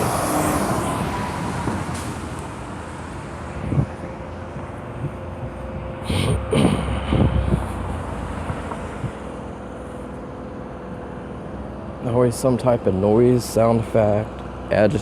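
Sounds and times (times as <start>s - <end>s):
vehicle passing by: 0.0s - 11.8s.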